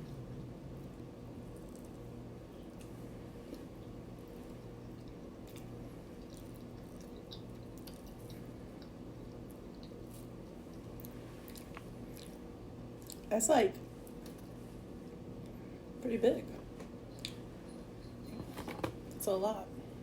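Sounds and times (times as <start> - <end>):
faint chewing: 0.0 - 13.3, 17.1 - 18.5
low electrical hum: 0.0 - 20.0.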